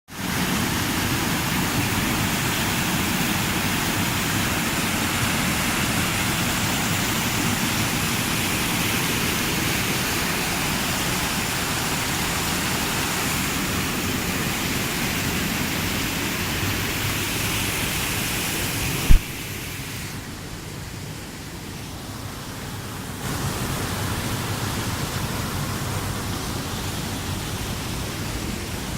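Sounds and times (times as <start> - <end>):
river water rushing: 0.1 - 28.9
sharp click: 19.1 - 19.4.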